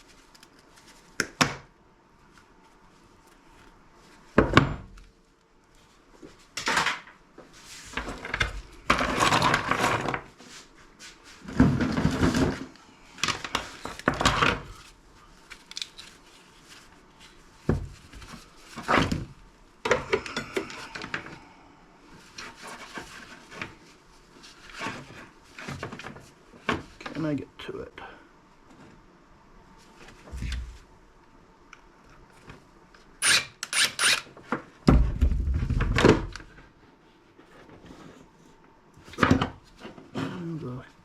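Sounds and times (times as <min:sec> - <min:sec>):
parts clattering and scraping: 0:06.6 - 0:14.9.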